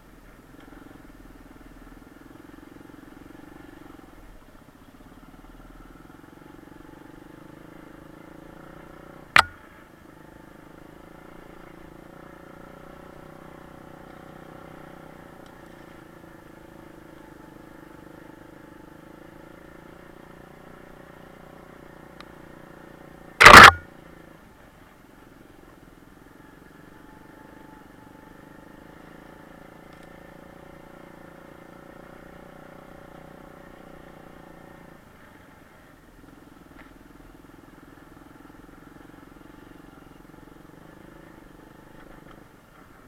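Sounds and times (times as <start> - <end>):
motorbike engine running: 5.9 - 18.1, 18.8 - 24.1
sharp knock: 9.4 - 9.6, 23.4 - 23.8.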